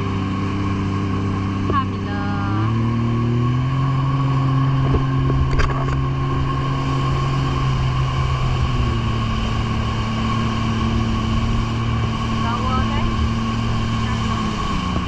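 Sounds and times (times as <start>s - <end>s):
jet ski engine droning: 0.0s - 15.0s
water noise: 0.0s - 15.0s
wind noise: 4.0s - 15.0s.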